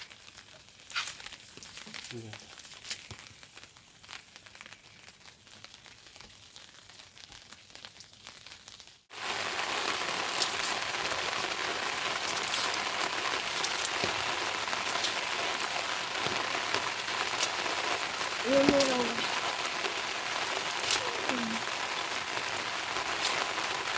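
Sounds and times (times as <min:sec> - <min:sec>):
light raindrop ticks: 0:00.0 - 0:09.0, 0:10.2 - 0:11.4, 0:12.1 - 0:23.9
heavy rain pouring: 0:09.1 - 0:23.9.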